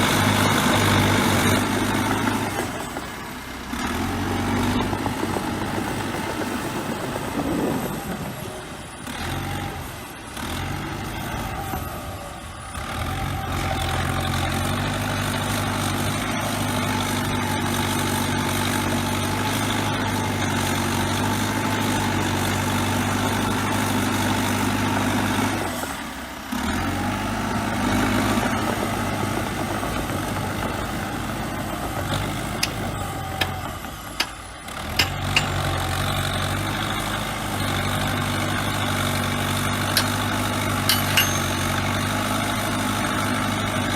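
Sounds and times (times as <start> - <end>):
bulldozer engine running: 0.0 - 43.9
sharp metallic clicks: 34.2 - 35.8, 39.9 - 41.6.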